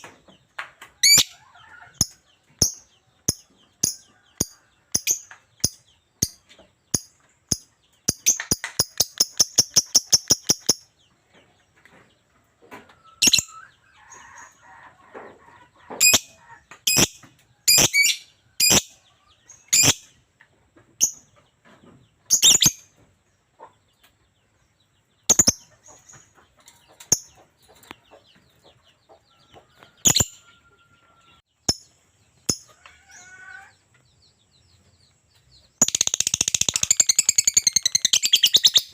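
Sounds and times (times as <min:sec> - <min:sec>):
lovebird chirping: 0:02.0 - 0:11.0, 0:13.2 - 0:14.3, 0:16.9 - 0:20.1, 0:22.3 - 0:22.9, 0:25.2 - 0:26.2, 0:35.6 - 0:38.9.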